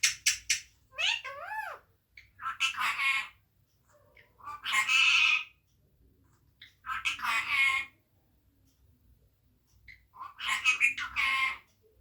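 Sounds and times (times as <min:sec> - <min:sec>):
parrot calling loudly: 0:00.0 - 0:03.4, 0:04.4 - 0:05.6, 0:06.8 - 0:08.0, 0:10.1 - 0:11.7.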